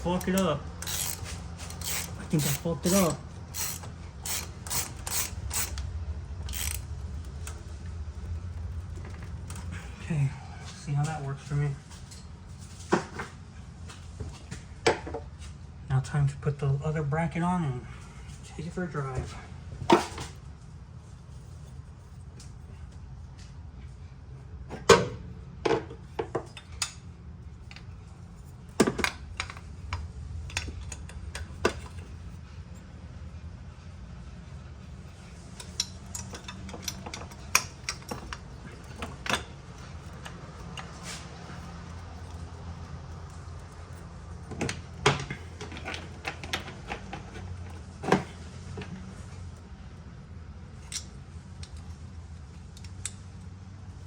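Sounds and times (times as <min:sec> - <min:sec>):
steady low hum: 0:00.0 - 0:54.0
metal tools clinking: 0:00.1 - 0:05.8, 0:06.4 - 0:06.9, 0:35.5 - 0:41.0.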